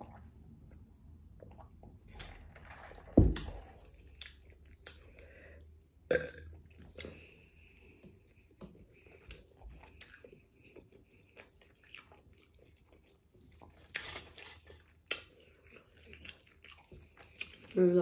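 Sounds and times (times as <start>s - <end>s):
person chewing food: 3.8s - 17.8s.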